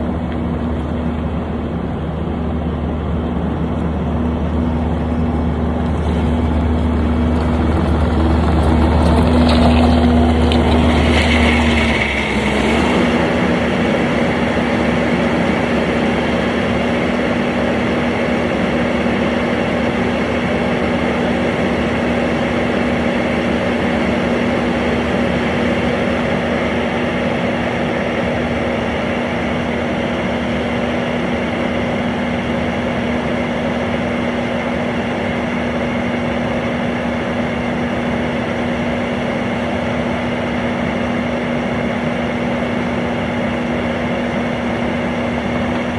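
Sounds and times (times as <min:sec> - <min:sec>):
construction machine engine hum: 0:00.0 - 0:45.9
deep low rumble: 0:03.8 - 0:12.5.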